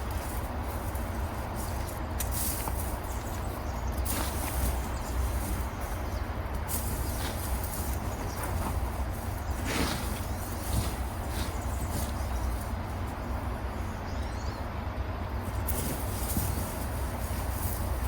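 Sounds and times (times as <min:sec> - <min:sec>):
potatoes scraped from soil: 0:00.0 - 0:12.8.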